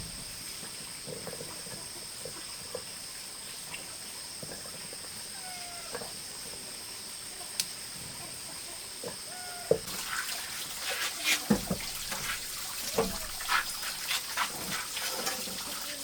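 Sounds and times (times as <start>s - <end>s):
water splashing and trickling: 0.0s - 16.0s
animal calls: 5.2s - 6.2s, 8.2s - 9.9s.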